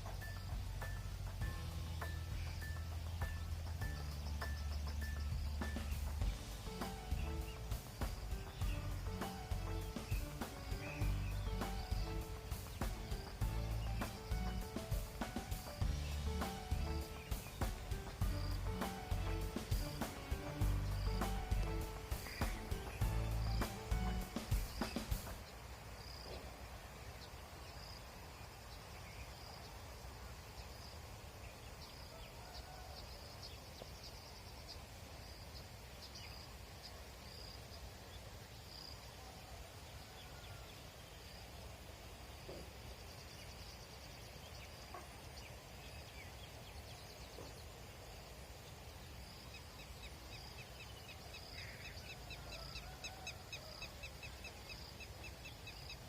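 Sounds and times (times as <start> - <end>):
steady low rumble: 0.0 - 25.3
birds chirping: 0.0 - 29.8.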